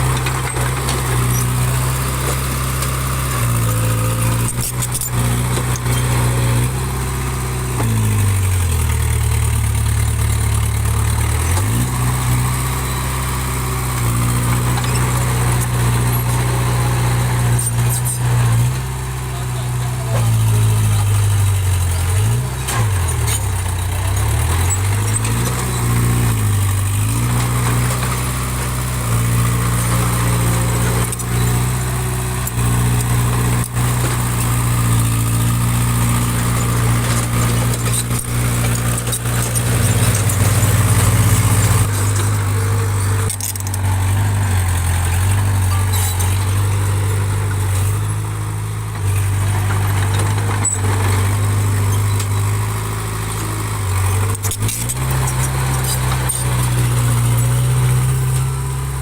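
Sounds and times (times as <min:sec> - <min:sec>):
bulldozer diesel engine under load: 0:00.0 - 0:59.0.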